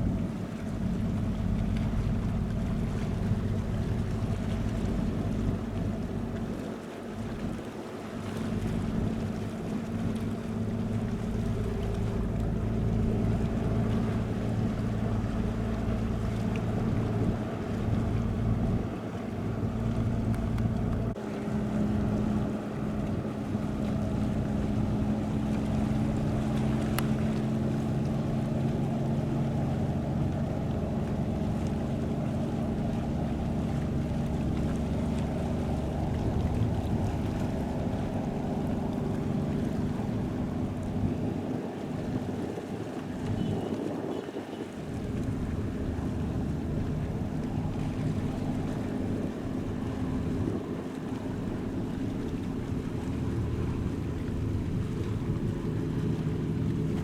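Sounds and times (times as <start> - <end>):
ship engines humming: 0.0 - 57.0
wind noise on microphone: 33.0 - 57.0.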